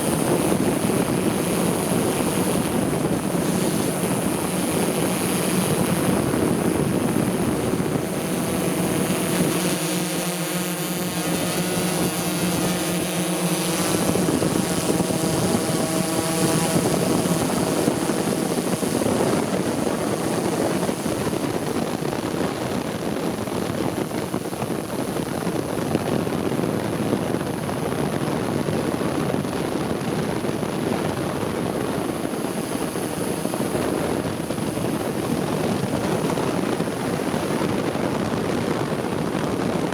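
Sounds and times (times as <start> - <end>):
drone propellers buzzing: 0.0 - 25.4.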